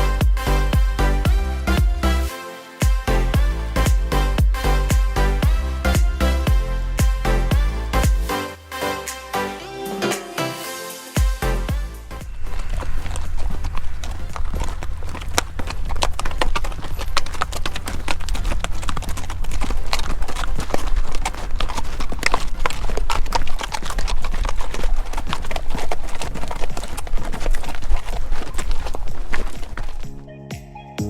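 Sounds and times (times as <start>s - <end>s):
horse hooves clip-clopping: 0.0s - 8.9s, 10.1s - 30.3s
constant low rumble: 11.6s - 30.2s.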